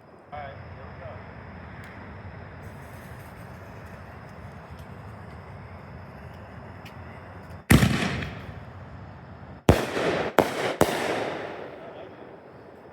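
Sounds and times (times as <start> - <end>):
firework launch bang: 7.7 - 8.9, 9.7 - 12.9
firework shell breaks echoing: 7.7 - 8.9, 9.7 - 12.9.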